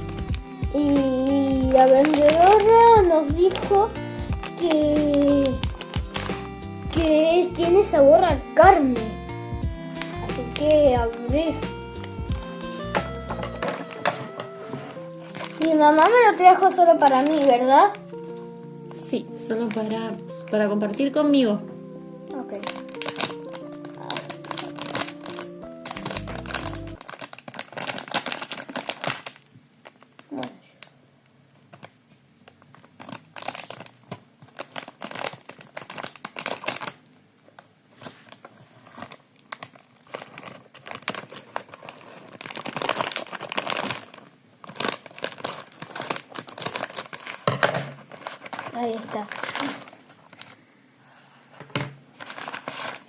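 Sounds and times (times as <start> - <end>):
plastic snack wrapper crinkling: 0.0 - 8.9, 9.9 - 21.4, 22.3 - 31.0, 31.6 - 50.7, 52.1 - 53.0
background music: 0.0 - 27.0.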